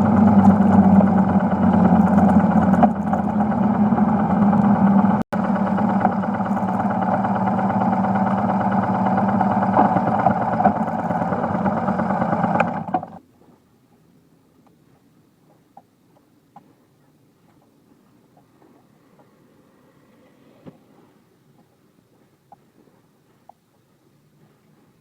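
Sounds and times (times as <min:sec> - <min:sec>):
motorcycle engine running: 0:00.0 - 0:13.2.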